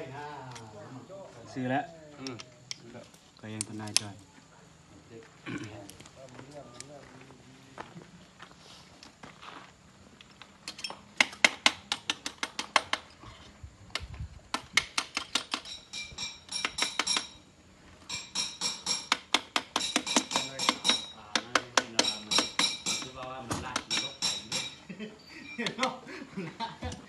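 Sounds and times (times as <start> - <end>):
hammer tapping on steel: 14.5 - 17.4, 18.1 - 24.8.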